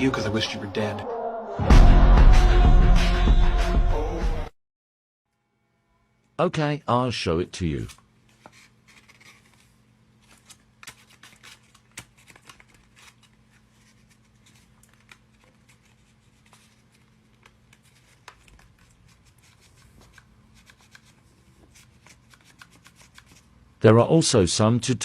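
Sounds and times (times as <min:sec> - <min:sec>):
paper rustling: 0:07.8 - 0:23.5.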